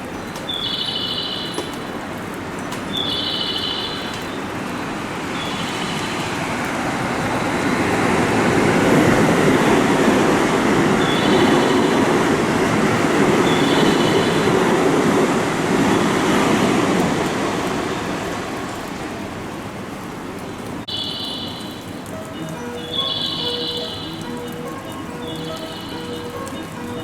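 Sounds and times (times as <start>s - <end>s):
train rumbling: 0.0s - 20.9s, 22.0s - 27.0s.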